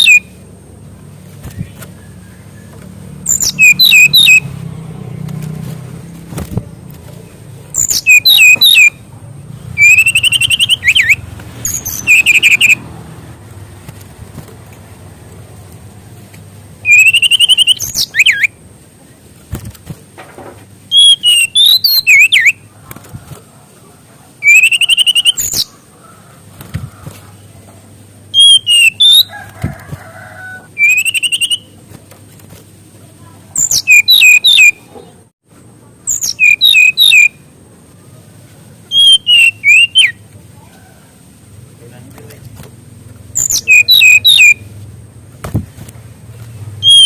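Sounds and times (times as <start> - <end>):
bird singing whistled trills: 0.0 - 0.3, 1.5 - 4.5, 7.7 - 9.0, 9.8 - 12.8, 16.8 - 18.6, 20.9 - 22.6, 24.4 - 25.7, 28.3 - 29.3, 30.8 - 31.8, 33.6 - 34.8, 36.1 - 37.4, 38.9 - 40.2, 43.4 - 44.6, 46.8 - 47.0.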